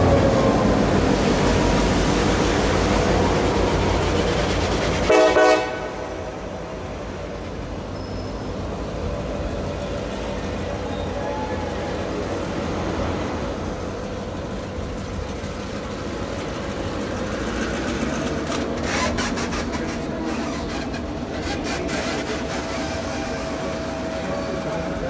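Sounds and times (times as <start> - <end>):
train coaches rumbling past: 0.0 - 25.0
wheels clacking over rail joints: 12.7 - 24.5.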